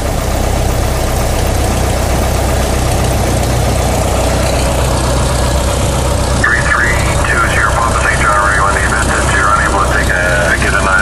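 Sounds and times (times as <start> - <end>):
cabin airflow noise: 0.0 - 11.0
propeller plane engine droning: 0.0 - 11.0.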